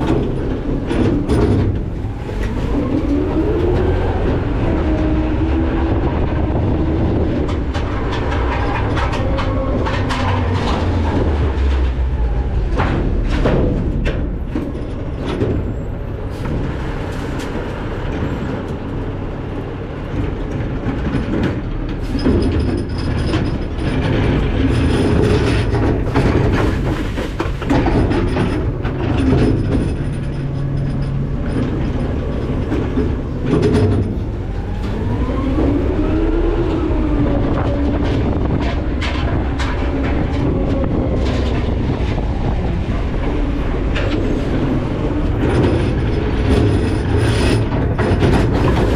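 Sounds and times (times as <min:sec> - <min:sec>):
garbage truck engine rumbling: 0:00.0 - 0:48.9.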